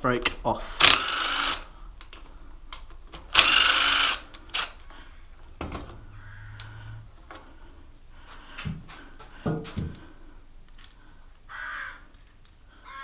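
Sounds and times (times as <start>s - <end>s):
power drill burst: 0.7s - 1.7s, 3.3s - 4.8s.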